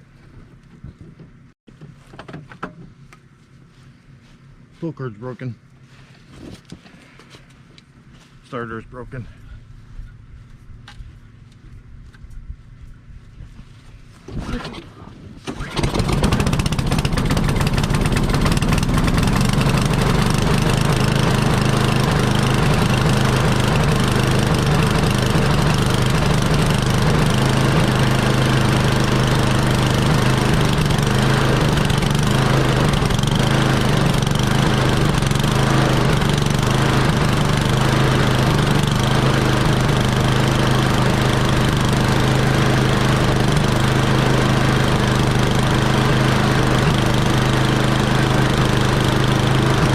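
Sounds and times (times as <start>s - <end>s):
snowblower engine running: 15.5s - 49.9s.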